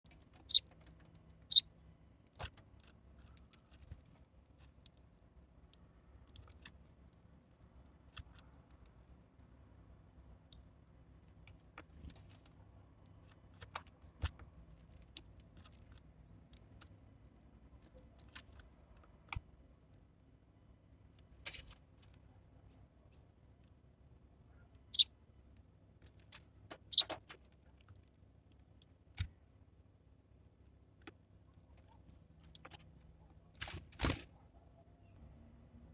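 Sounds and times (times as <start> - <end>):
birds pecking seed: 0.0 - 5.1, 26.0 - 29.4.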